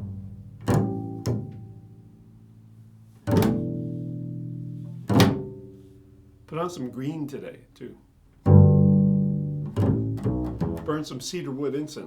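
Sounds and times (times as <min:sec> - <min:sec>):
plucked low string notes: 0:00.0 - 0:02.2, 0:03.2 - 0:05.8, 0:08.4 - 0:11.1.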